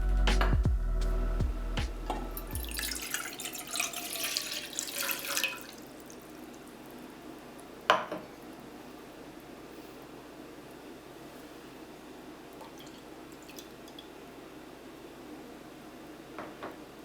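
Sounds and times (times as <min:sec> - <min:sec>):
water drip: 0:02.1 - 0:07.1, 0:12.5 - 0:14.2
tap water running into sink: 0:02.6 - 0:06.2.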